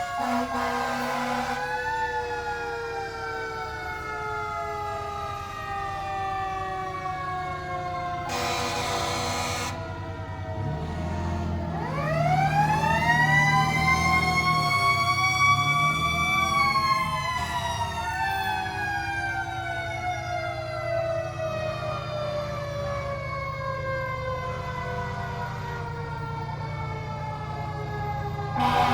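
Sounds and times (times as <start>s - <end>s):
second siren tone: 8.2s - 11.6s, 28.5s - 28.9s
vehicle siren winding: 8.3s - 9.8s.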